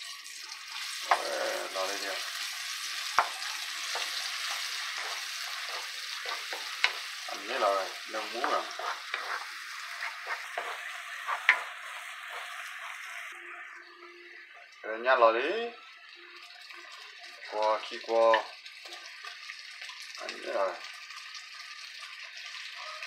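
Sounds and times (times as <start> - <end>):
paste sizzling in hot oil: 0.0 - 13.9, 15.4 - 23.0
spatula stirring and scraping: 0.8 - 13.3.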